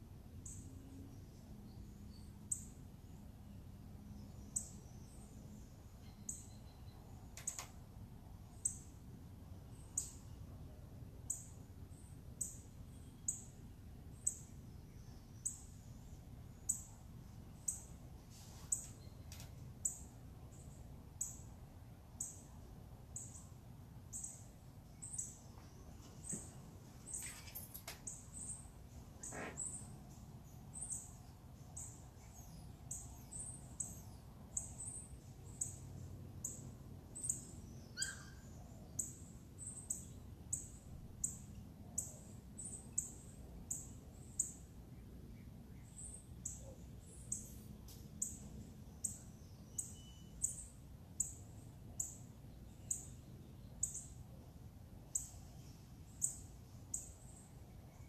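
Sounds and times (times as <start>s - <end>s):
bird high chirp: 4.2s - 7.7s, 37.2s - 44.6s, 49.0s - 51.4s.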